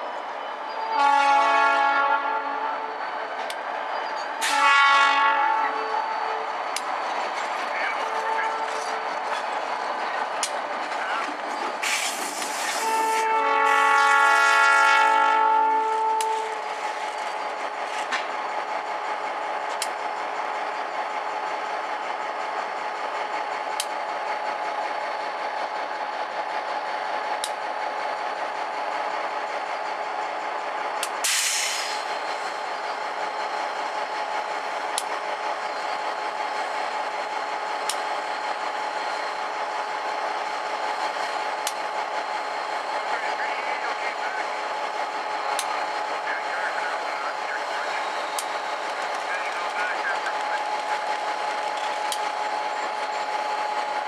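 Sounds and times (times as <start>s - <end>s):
locomotive engine running: 0.0s - 54.0s
locomotive horn blast: 0.8s - 3.0s, 4.4s - 6.4s, 12.8s - 16.6s
short hiss: 31.2s - 32.0s.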